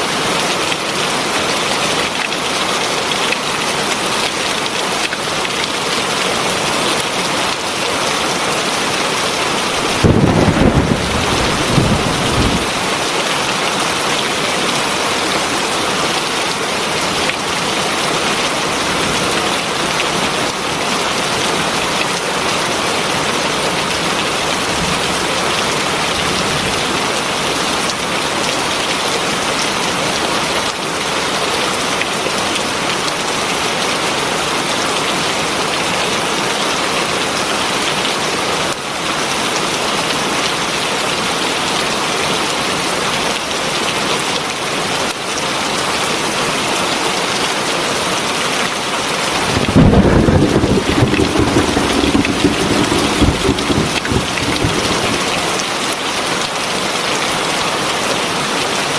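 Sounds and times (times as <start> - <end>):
heavy rain: 0.0 - 34.0, 49.2 - 56.4.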